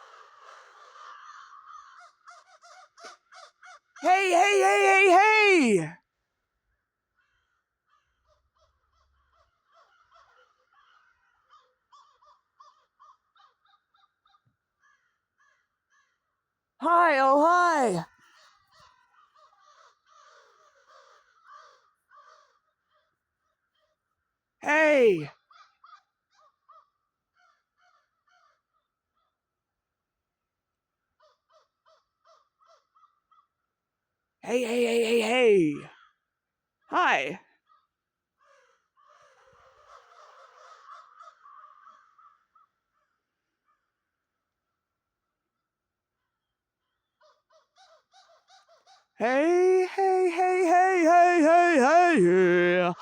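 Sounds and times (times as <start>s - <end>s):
distant crows cawing: 40.7s - 42.7s.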